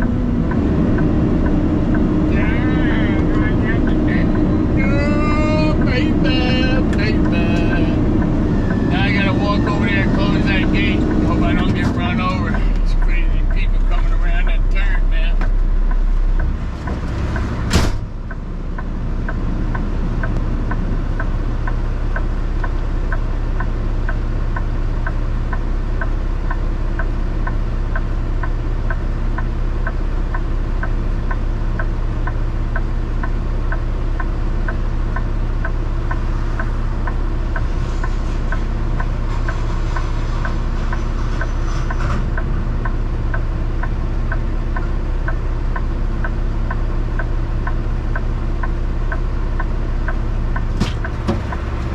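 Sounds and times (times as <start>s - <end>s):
even ticking: 0.0s - 51.9s
vehicle engine running: 0.0s - 51.9s
sharp knock: 17.7s - 18.1s.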